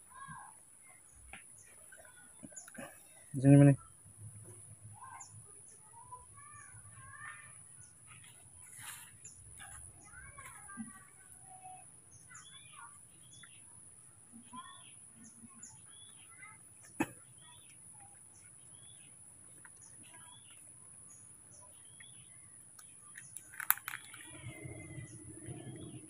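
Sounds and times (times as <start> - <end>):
small birds chirping: 0.0 - 26.0
sharp clicks: 22.7 - 25.1.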